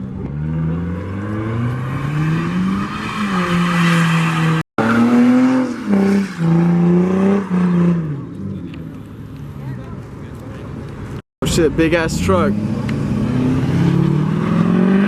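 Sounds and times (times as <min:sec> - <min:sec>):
car engine revving hard: 0:12.2 - 0:15.0.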